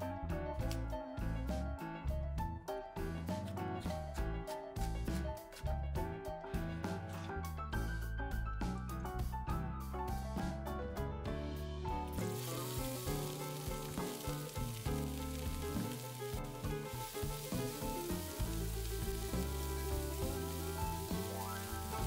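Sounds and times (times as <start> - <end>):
background music: 0.0 - 22.0
vegetables sizzling in oil: 12.1 - 22.0.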